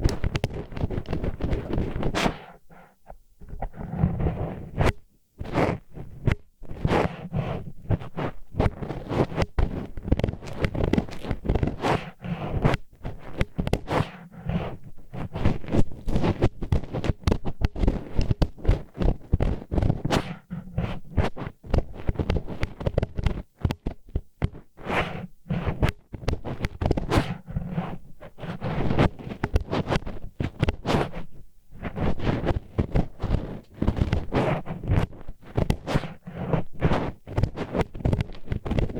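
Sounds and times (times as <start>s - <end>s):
wooden chopsticks scraping: 24.8s - 32.6s.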